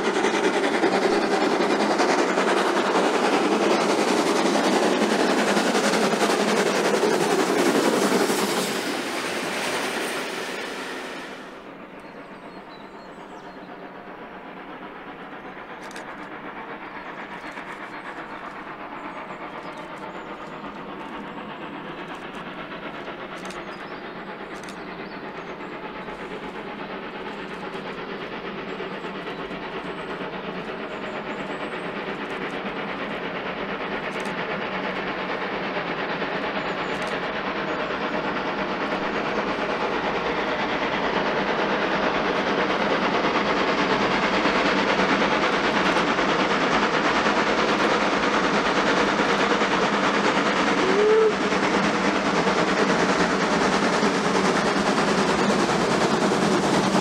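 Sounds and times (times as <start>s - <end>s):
train running noise: 0.0s - 57.0s.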